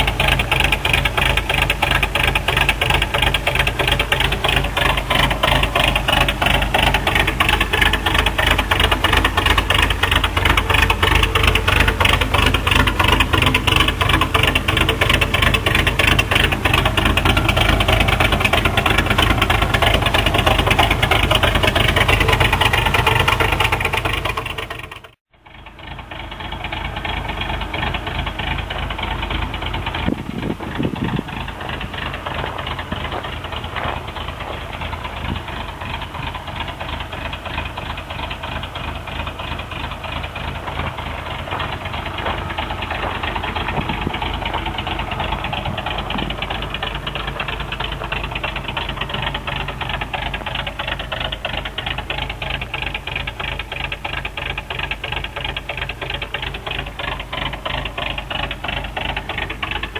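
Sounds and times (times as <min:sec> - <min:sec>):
pickup engine idling: 0:00.0 - 0:59.9.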